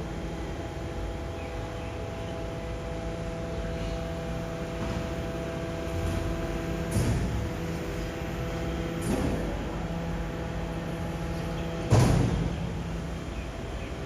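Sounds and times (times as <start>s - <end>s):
garbage truck engine drone: 0.0s - 14.0s
loud metallic clanks: 4.8s - 10.1s.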